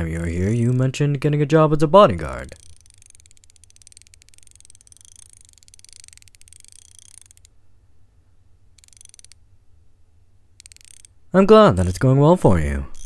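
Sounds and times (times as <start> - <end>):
ratchet spanner clicking: 2.4 - 7.5, 8.8 - 9.4, 10.6 - 11.1.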